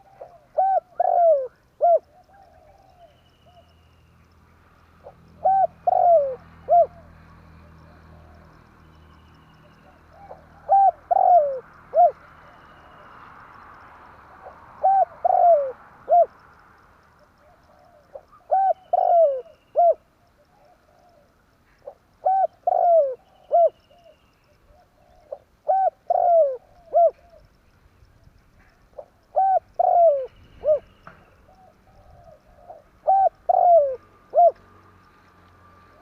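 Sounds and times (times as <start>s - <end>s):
dove cooing: 0.0s - 3.7s, 5.0s - 7.2s, 9.8s - 13.1s, 14.4s - 16.4s, 17.3s - 27.5s, 29.0s - 34.6s.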